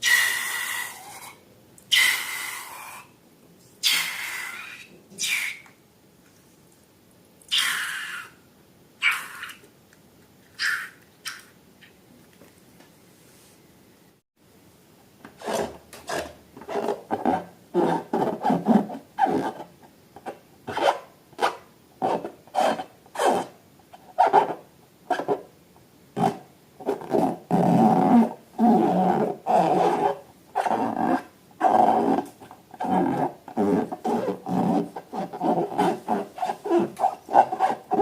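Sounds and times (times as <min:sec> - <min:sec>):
rubber squeaking when rubbed: 0:15.4 - 0:23.5, 0:24.2 - 0:25.4, 0:26.2 - 0:38.0.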